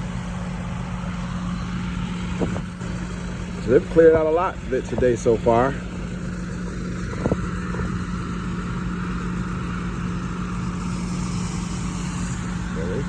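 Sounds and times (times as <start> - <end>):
diesel engine running steadily: 0.0 - 13.0.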